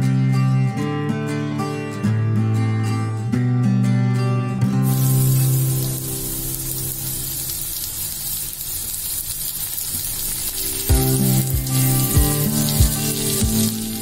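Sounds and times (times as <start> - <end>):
background music: 0.0 - 7.8, 10.1 - 14.0
onions sizzling in a pan: 4.8 - 14.0.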